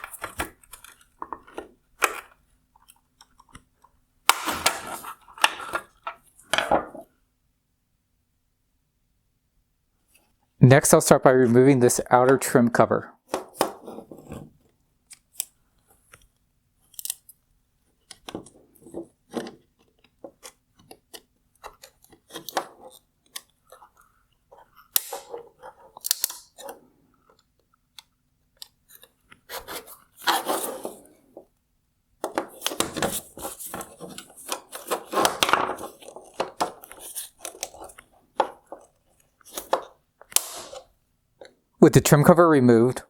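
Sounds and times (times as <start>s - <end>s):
plastic scraping and crackling: 0.0s - 7.0s, 32.2s - 41.6s
plastic clicking and cracking: 14.6s - 29.5s, 32.2s - 41.6s.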